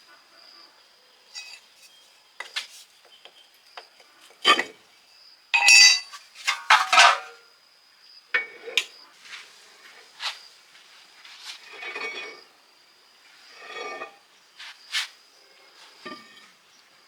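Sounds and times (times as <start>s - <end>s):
metal tools clinking: 1.4s - 1.6s, 5.6s - 7.4s.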